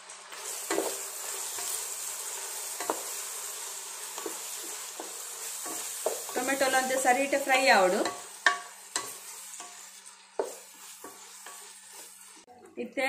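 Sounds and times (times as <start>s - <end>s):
onions sizzling in oil: 0.0s - 13.0s
wooden spatula scraping pot: 4.1s - 12.8s.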